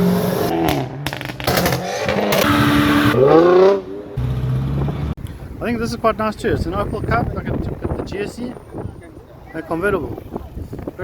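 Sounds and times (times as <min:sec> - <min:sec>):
car engine revving: 0:00.0 - 0:05.2.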